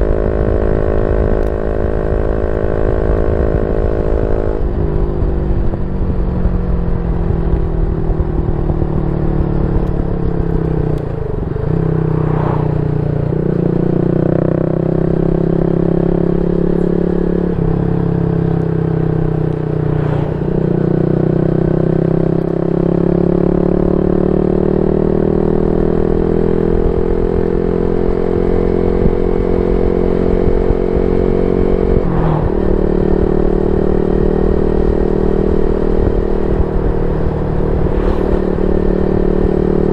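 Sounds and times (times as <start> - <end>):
motorcycle exhaust note: 0.0 - 39.9.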